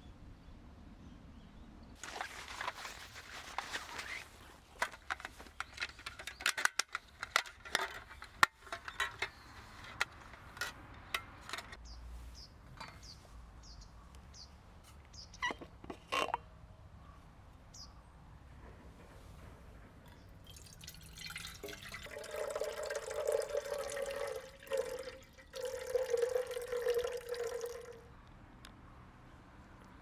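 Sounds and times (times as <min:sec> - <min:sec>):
rustle: 0:01.5 - 0:16.5
objects clicking and knocking: 0:04.7 - 0:11.8.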